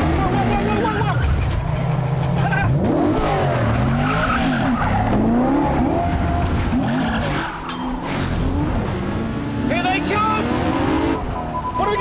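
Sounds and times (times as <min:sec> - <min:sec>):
car engine revving hard: 0:02.7 - 0:07.4, 0:08.1 - 0:11.3.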